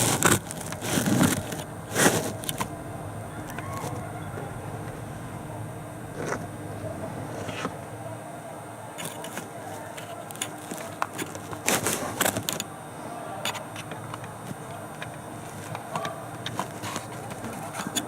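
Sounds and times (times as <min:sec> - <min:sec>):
microphone handling clicks and rustles: 0:00.0 - 0:02.8
low background hum: 0:00.0 - 0:18.0.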